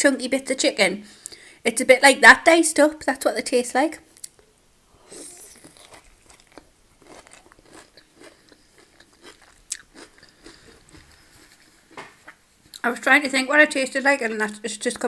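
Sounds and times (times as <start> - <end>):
person chewing food: 4.2 - 12.8
crisp crunches: 5.2 - 12.8.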